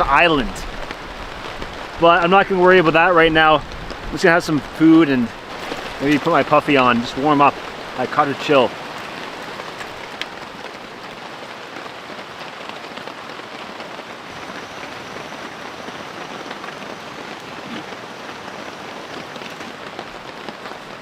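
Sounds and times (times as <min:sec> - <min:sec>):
rain pattering on a tarp: 0:00.0 - 0:21.0.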